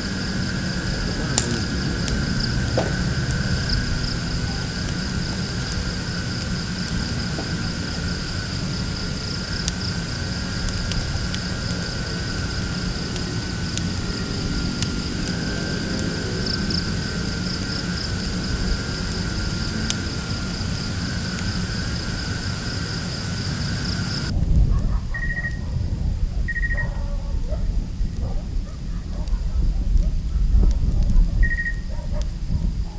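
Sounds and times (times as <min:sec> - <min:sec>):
high insect drone: 0:00.0 - 0:24.3
wind rumbling on microphone: 0:00.0 - 0:32.9.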